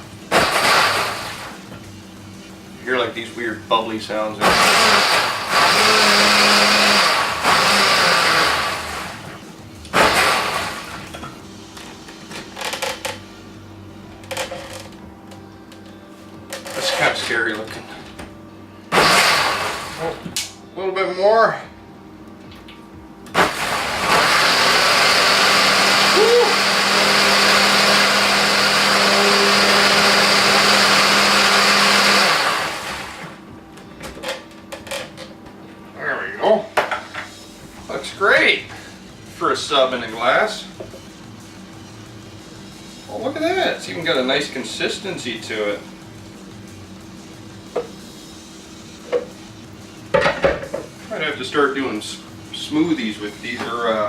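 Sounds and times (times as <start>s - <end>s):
blender running: 0.0s - 1.8s, 4.4s - 11.3s, 18.9s - 20.4s, 23.3s - 33.4s.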